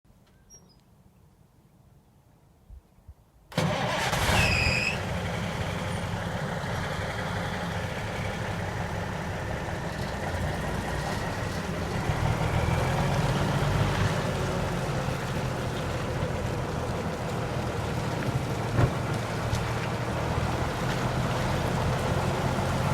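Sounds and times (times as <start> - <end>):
diesel engine starting and idling: 3.5 - 22.9
high-pitched squeal: 3.8 - 5.1.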